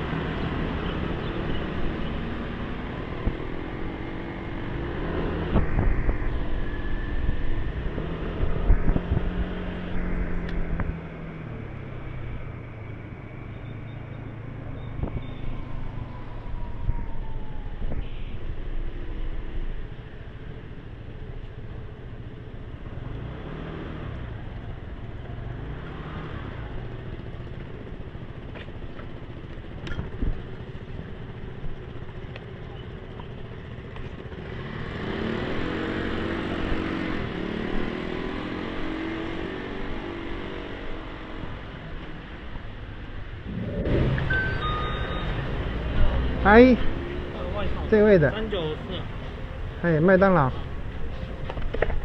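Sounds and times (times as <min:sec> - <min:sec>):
motorbike engine running: 0:43.5 - 0:52.0.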